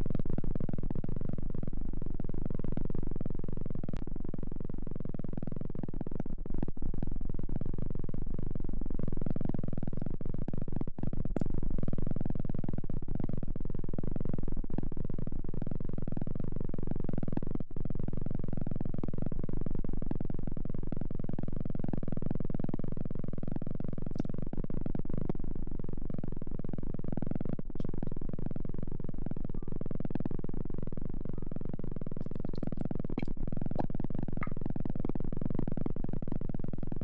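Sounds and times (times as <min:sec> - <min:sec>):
dense low rumble: 0:31.2 - 0:34.6.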